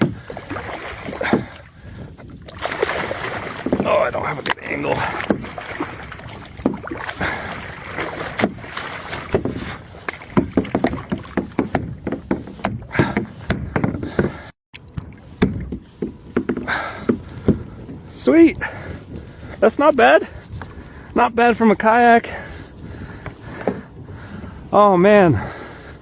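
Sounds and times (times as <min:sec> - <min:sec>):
knocks and bumps on kayak: 0:00.0 - 0:19.6, 0:22.3 - 0:25.6
water splashing: 0:00.0 - 0:20.4.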